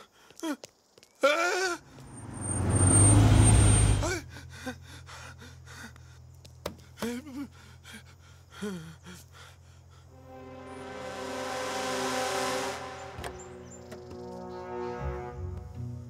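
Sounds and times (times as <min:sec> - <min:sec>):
man gasping and whimpering: 0:04.0 - 0:06.2, 0:06.8 - 0:10.1.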